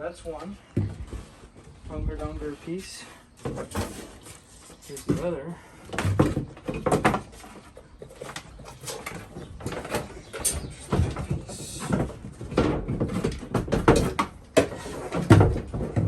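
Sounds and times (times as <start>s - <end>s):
wood scraping: 0.0s - 16.0s
plywood pieces knocking: 5.9s - 16.0s.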